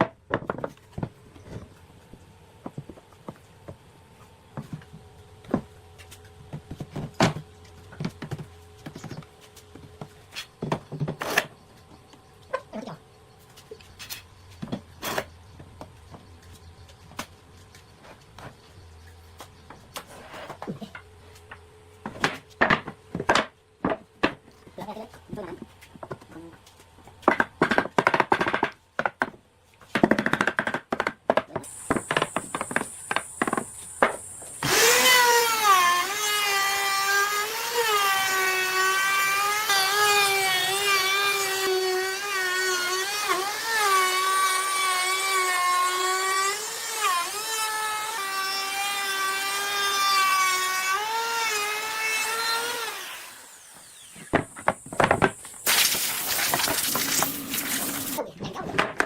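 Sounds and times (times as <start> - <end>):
power tool motor whining: 31.7 - 45.4, 46.2 - 58.2.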